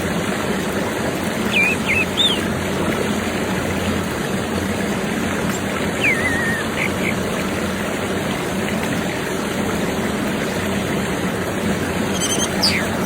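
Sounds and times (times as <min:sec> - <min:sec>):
rushing stream: 0:00.0 - 0:13.0
bird whistling: 0:01.5 - 0:02.4, 0:06.0 - 0:07.1, 0:12.1 - 0:13.0.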